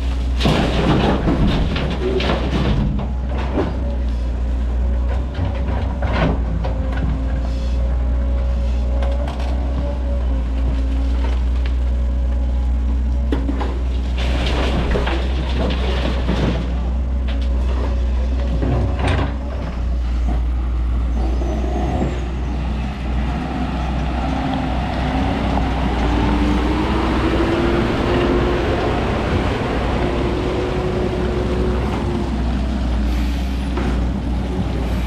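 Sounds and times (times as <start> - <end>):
earth and rock dropped into truck: 0.0 - 4.0, 13.2 - 20.4
heavy diesel engines running: 0.0 - 35.0
loaded truck pulling away: 13.7 - 35.0.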